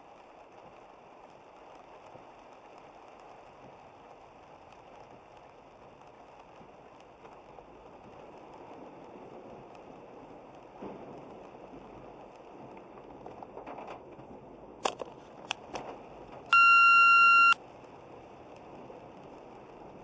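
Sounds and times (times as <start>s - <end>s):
loud electronic beep: 16.6s - 17.6s.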